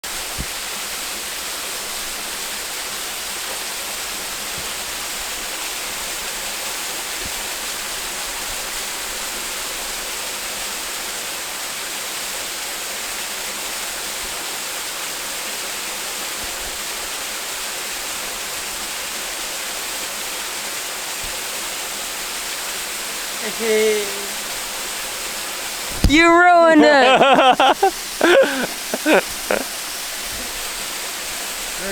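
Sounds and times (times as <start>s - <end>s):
waterfall rushing: 21.8s - 31.9s.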